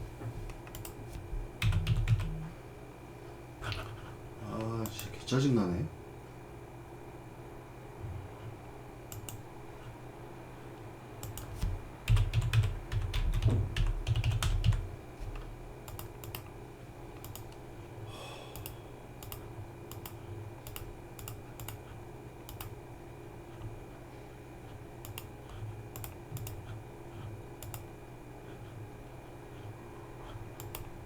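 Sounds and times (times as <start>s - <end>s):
computer keyboard typing: 0.7s - 1.0s, 1.6s - 2.5s, 9.1s - 9.4s, 11.2s - 14.9s, 15.8s - 16.5s, 17.2s - 17.6s, 18.6s - 21.9s, 22.5s - 22.8s, 25.0s - 26.8s, 27.6s - 27.9s, 30.6s - 30.9s.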